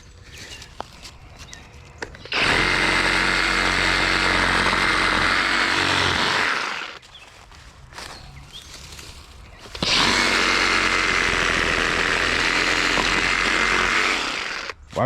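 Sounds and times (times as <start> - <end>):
reciprocating saw cutting branch: 2.3 - 7.0, 9.6 - 15.0.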